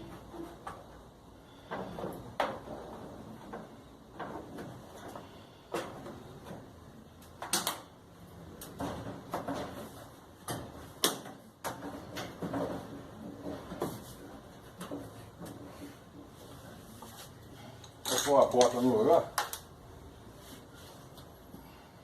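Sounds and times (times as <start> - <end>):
knocks and clacks of dryer parts: 0.0 - 16.5.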